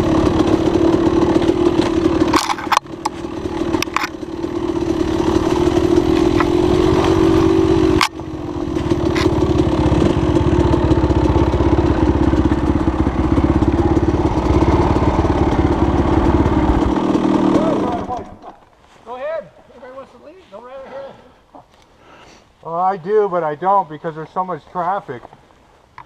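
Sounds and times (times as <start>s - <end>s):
dirt bike engine revving: 0.0s - 18.4s.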